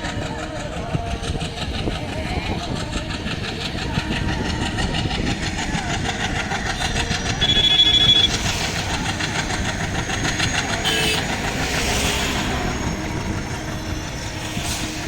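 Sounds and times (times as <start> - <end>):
train rumbling on rails: 0.0 - 15.0
high-pitched squeal: 4.4 - 15.0.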